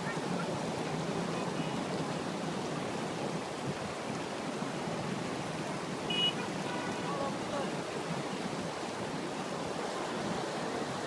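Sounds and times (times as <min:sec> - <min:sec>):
flood water rushing: 0:00.0 - 0:11.0.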